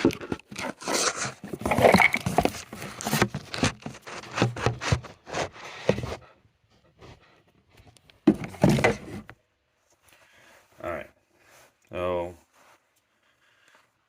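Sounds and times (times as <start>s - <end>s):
handling noise scraping and knocks: 0.0s - 6.2s, 8.2s - 9.3s.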